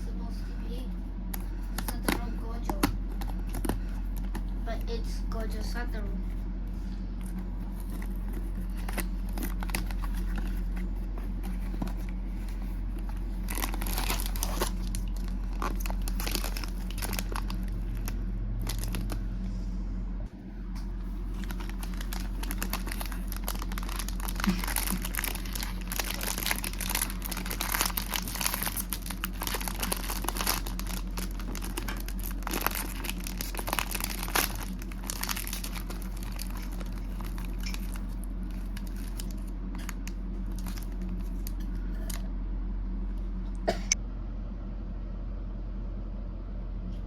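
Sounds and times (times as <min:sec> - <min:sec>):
low electrical hum: 0:00.0 - 0:47.0
plastic wrapper crinkling: 0:07.2 - 0:19.2, 0:21.0 - 0:42.2.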